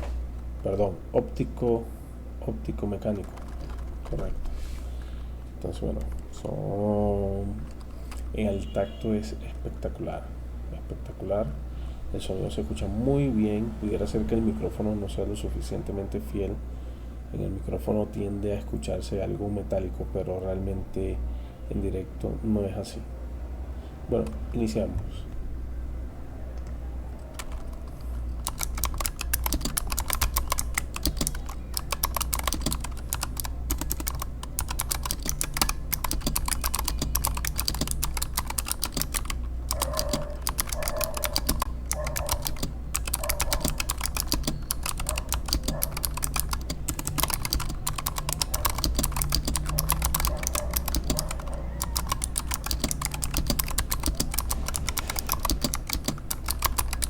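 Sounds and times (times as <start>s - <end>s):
steady low hum: 0.0s - 57.0s
fast mechanical keyboard typing: 2.6s - 4.6s, 5.6s - 8.5s, 26.6s - 57.0s.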